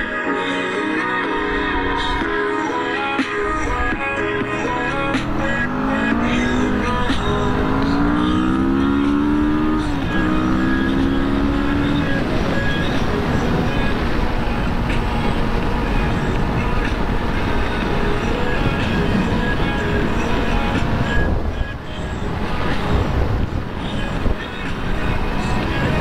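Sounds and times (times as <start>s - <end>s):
wind and road noise: 0.0s - 26.0s
motorcycle engine accelerating: 4.5s - 21.4s.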